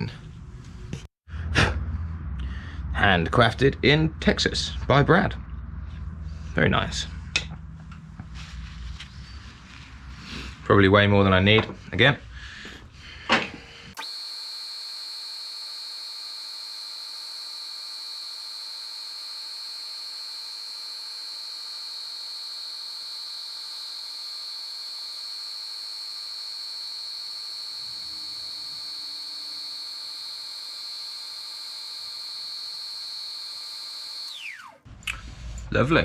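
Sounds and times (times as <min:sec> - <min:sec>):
wood lathe motor whine: 0:13.8 - 0:36.0.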